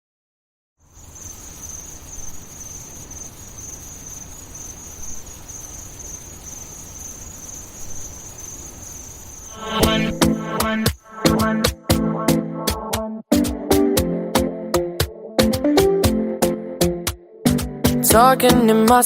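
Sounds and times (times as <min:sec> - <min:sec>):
crickets trilling: 0:00.8 - 0:11.6.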